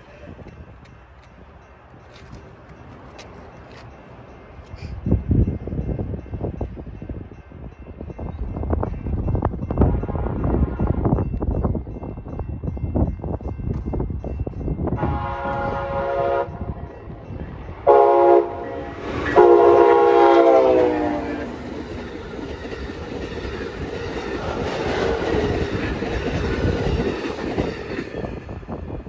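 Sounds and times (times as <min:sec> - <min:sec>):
train cars rumbling and clattering: 0:00.0 - 0:29.0
locomotive horn blasts: 0:15.0 - 0:16.8, 0:17.8 - 0:21.6.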